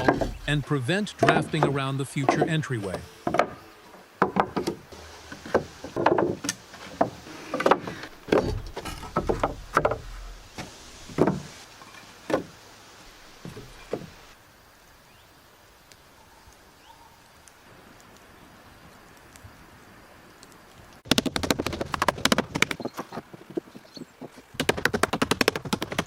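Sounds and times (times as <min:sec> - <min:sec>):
wooden knocks and thuds: 0:00.0 - 0:00.6, 0:01.2 - 0:03.6, 0:04.2 - 0:11.6, 0:12.3 - 0:12.6.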